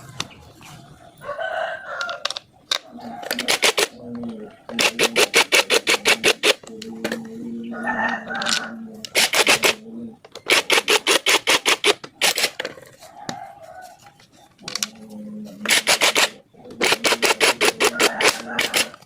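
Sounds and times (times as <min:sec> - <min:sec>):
rapid scraping strokes: 0:04.7 - 0:06.7, 0:10.4 - 0:14.4, 0:15.6 - 0:19.0.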